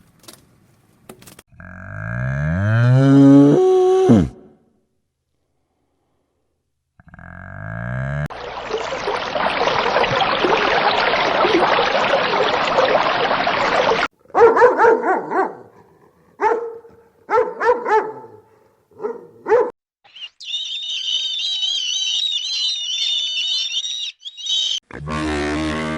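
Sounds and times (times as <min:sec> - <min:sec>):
dog barking: 0:14.3 - 0:15.8, 0:16.4 - 0:19.8.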